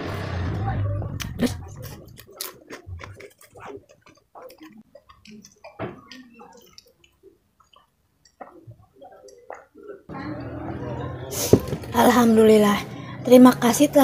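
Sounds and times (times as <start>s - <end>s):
sipping and gulping water: 1.2s - 10.0s
chewing crunchy cracker: 1.8s - 9.8s.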